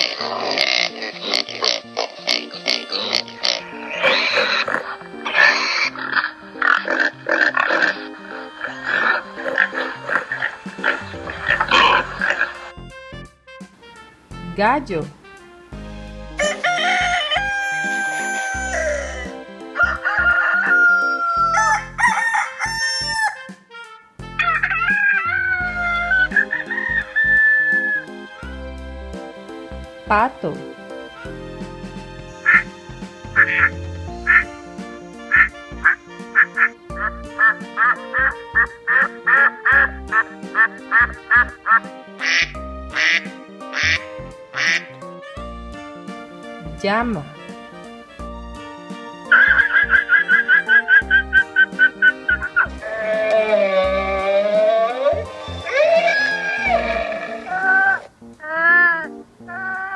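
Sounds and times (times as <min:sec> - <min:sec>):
ducks quacking: 0:00.0 - 0:12.7, 0:16.4 - 0:23.5, 0:24.4 - 0:28.1, 0:32.3 - 0:45.0, 0:49.3 - 0:59.9
background music: 0:00.0 - 0:59.9
rooster crowing: 0:16.4 - 0:23.6, 0:52.8 - 0:58.0.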